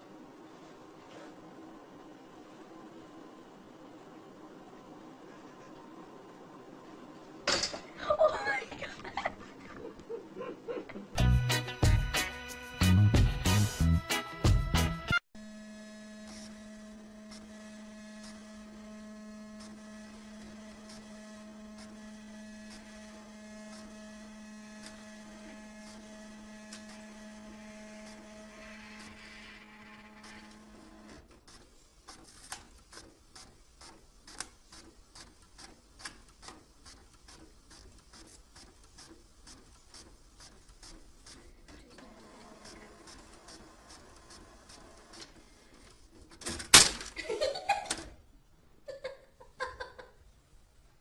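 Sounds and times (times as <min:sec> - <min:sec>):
low electrical hum: 0:00.0 - 0:11.2.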